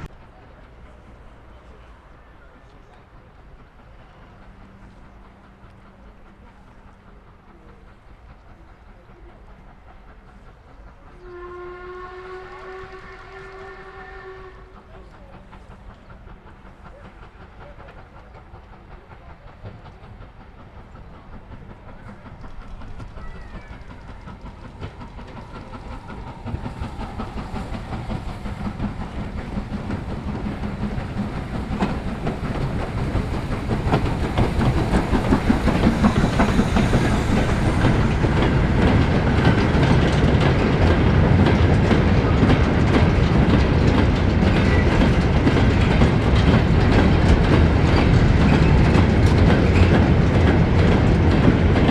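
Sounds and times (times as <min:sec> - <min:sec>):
train wheels clattering: 0:02.6 - 0:51.9.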